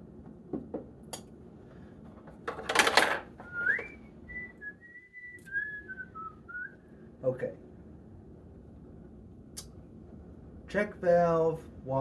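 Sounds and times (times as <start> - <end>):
person whistling: 3.4 - 6.9.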